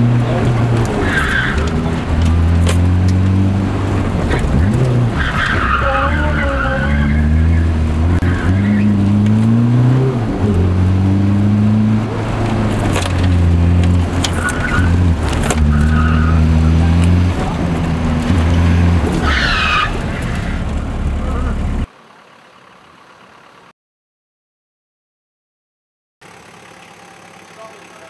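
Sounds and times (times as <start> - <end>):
tires squealing: 0.0 - 21.9
car engine accelerating: 0.0 - 23.7.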